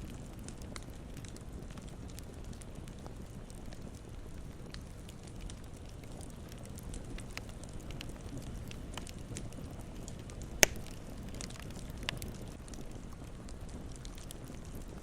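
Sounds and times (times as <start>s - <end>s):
campfire crackling: 0.0s - 15.0s
low fire rumble: 0.0s - 15.0s
loud sharp pop: 10.6s - 11.0s.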